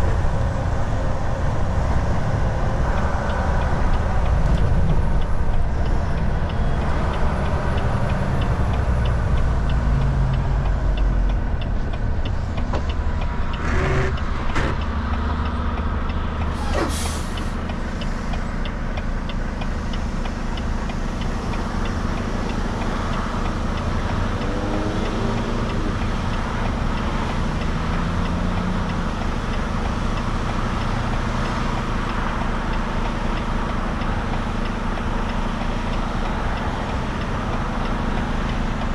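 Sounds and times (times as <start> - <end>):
truck engine and road noise: 0.0 - 38.9
short air hisses: 16.5 - 18.2.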